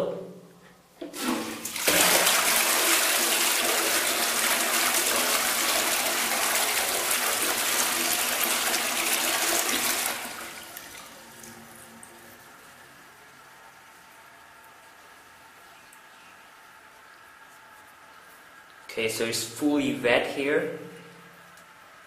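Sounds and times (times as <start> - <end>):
quiet steady water hiss: 0.0 - 22.0
toilet flushing: 1.0 - 13.8.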